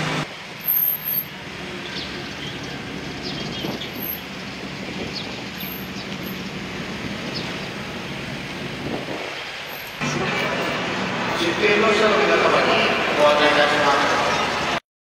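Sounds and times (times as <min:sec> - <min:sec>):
car engine low hum: 0:00.0 - 0:11.4.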